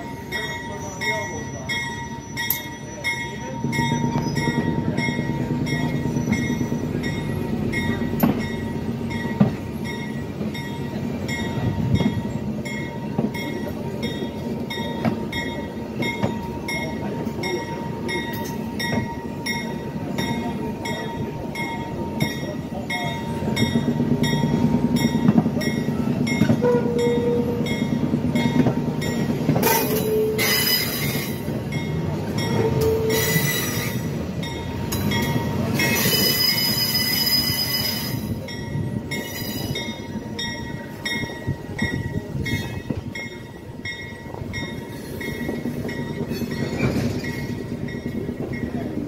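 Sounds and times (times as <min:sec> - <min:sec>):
train running on track: 0:00.0 - 0:49.0
wheels squealing: 0:35.0 - 0:38.2.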